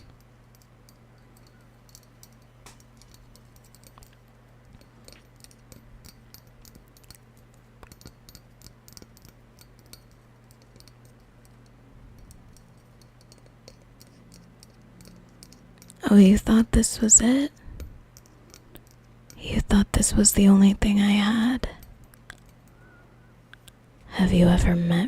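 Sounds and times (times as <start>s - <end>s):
small objects clicking and tapping: 0.0s - 16.0s, 17.6s - 19.4s, 21.8s - 23.8s
low electrical hum: 0.0s - 25.0s.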